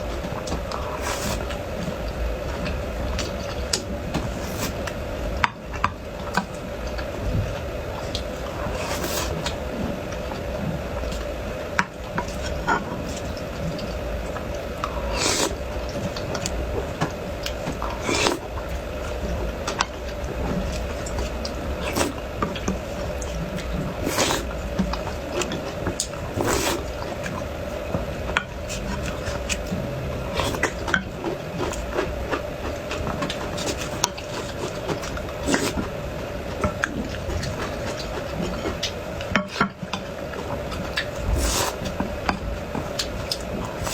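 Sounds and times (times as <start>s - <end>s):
steady hum: 0.0s - 43.9s
chewing sounds: 5.8s - 43.9s.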